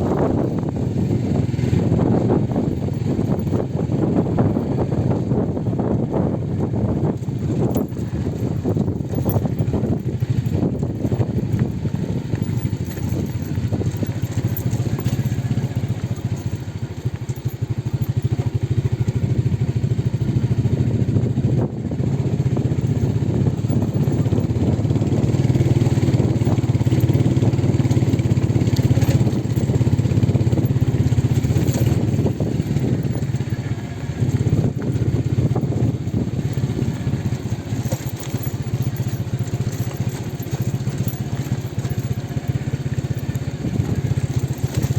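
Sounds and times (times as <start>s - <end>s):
road noise: 0.0s - 44.9s
vehicle engine humming: 0.0s - 44.9s.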